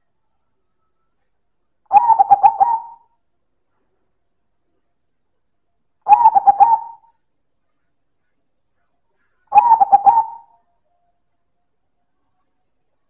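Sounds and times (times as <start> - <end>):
dove cooing: 1.9 - 3.1, 6.1 - 7.0, 9.5 - 10.5.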